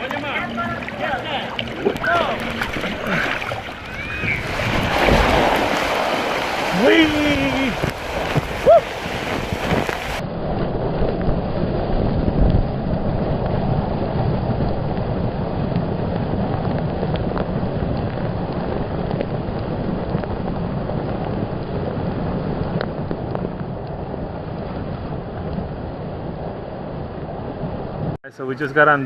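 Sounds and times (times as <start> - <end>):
rushing water: 0.0 - 10.2
wind buffeting microphone: 0.0 - 28.2.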